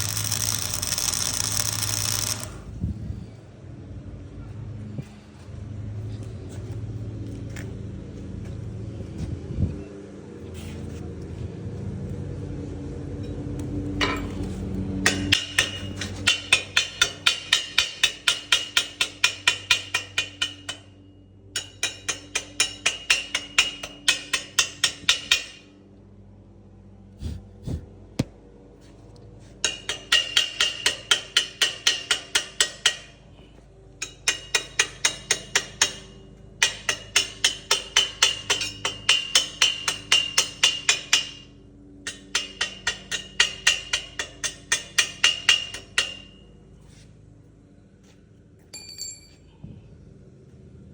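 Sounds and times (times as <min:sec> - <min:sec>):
metal hammering with ringing: 0:14.0 - 0:25.8, 0:29.6 - 0:33.2, 0:34.0 - 0:46.7, 0:48.7 - 0:49.5.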